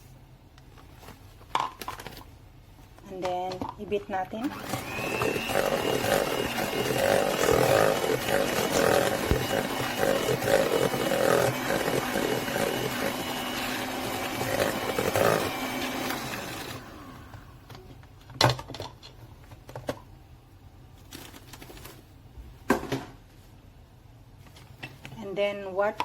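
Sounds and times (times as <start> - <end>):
electric hand mixer running: 4.4 - 17.6.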